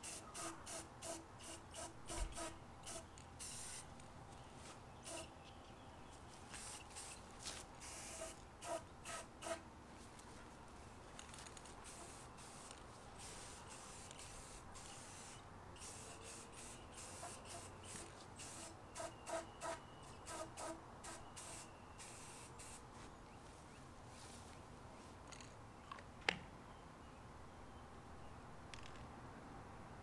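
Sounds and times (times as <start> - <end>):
spray can hissing: 0.0 - 3.9, 5.0 - 5.3, 6.5 - 7.2, 7.8 - 9.6, 11.8 - 20.8, 21.4 - 22.8
spray can ball rattling: 6.6 - 7.2, 11.2 - 17.7.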